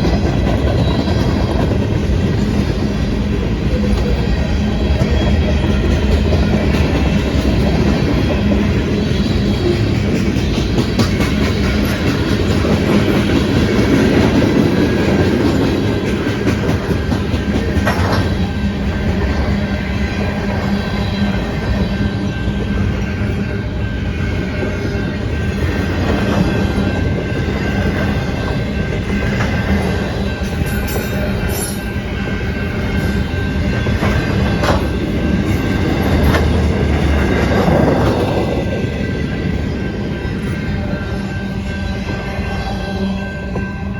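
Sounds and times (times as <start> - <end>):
train wheel clacks: 0.0 - 19.5, 24.6 - 40.6
freight train rumbling past: 0.0 - 43.9
wheels clacking over rail joints: 9.6 - 19.3, 33.2 - 38.6.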